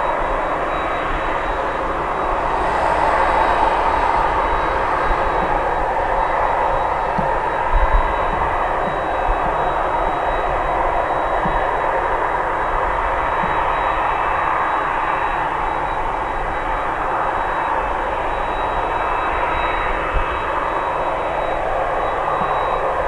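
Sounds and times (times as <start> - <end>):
jet engines running: 0.9 - 8.9.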